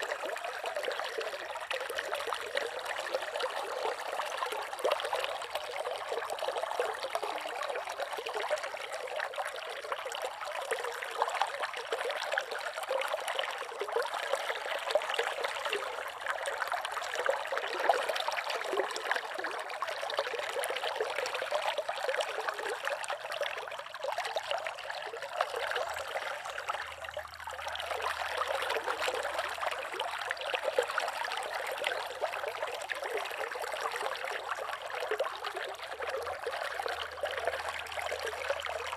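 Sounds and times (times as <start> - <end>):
river water babbling: 0.0 - 38.9.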